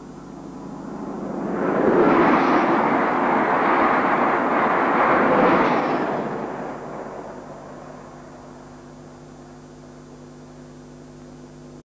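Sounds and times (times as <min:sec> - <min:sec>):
train passing at speed: 0:00.0 - 0:09.6
low soundtrack hum: 0:00.0 - 0:10.0.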